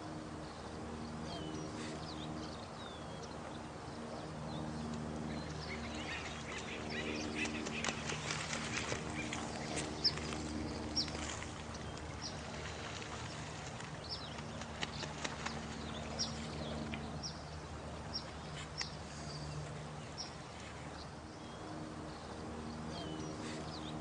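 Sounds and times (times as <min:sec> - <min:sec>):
low steady hum: 0:00.0 - 0:24.0
running water: 0:03.6 - 0:22.5
faint clicks: 0:18.8 - 0:19.0.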